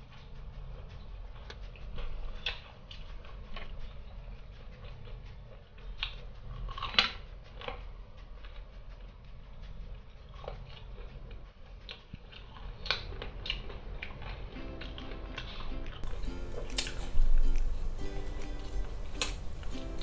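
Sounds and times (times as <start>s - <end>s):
crunching fried chicken: 4.8s - 7.8s, 11.8s - 20.0s.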